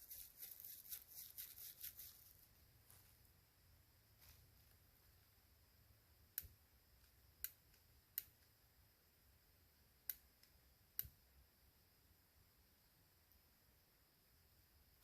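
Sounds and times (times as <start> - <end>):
faint sharp clicks: 10.0 - 11.2.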